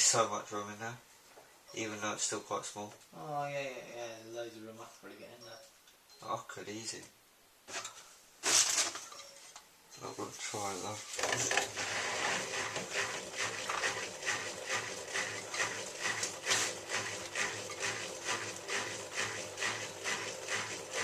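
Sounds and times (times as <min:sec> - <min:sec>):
washing machine motor hum: 0:11.2 - 0:21.0.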